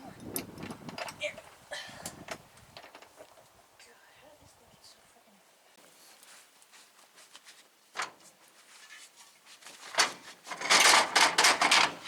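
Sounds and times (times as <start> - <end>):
loading gear scraping and rattling: 8.8 - 12.0
metal knocks: 10.0 - 12.0.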